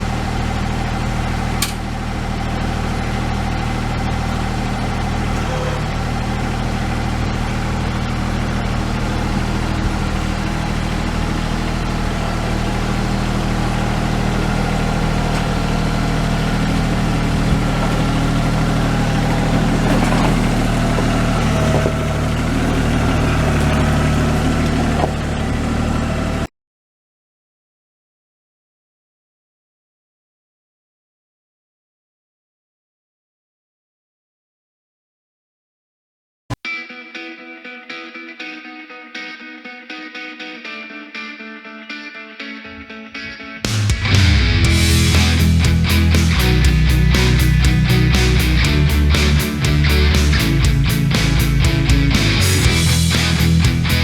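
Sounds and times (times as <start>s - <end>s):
tractor diesel engine running: 0.0s - 26.5s, 43.6s - 54.0s.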